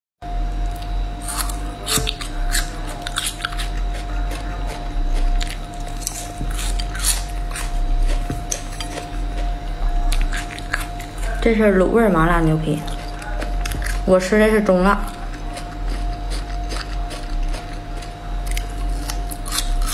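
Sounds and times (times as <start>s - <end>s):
low hum: 0.2s - 19.9s
wet chewing and mouth smacks: 12.8s - 14.0s, 15.0s - 19.9s.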